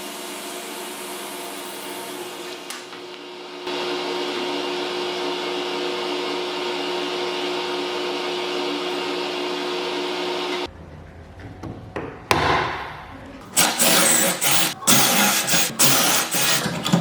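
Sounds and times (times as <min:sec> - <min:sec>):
power tool motor whining: 0:13.5 - 0:17.0.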